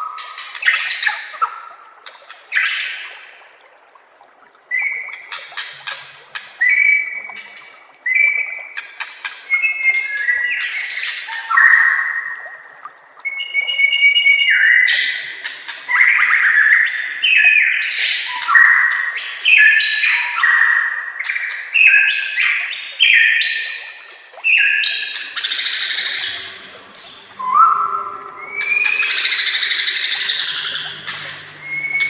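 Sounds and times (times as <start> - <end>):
bird singing whistled phrases: 13.2 - 15.0, 24.5 - 32.0.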